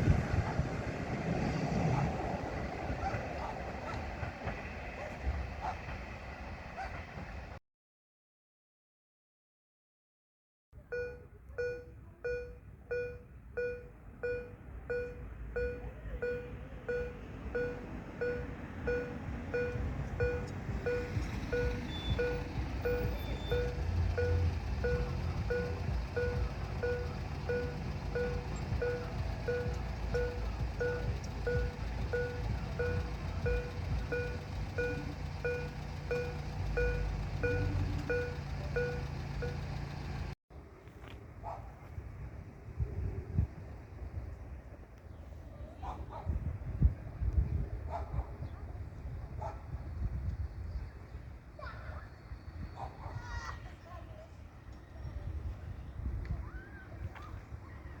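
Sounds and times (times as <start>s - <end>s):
level crossing bell dinging: 10.9s - 39.7s
low rumble: 15.6s - 40.4s.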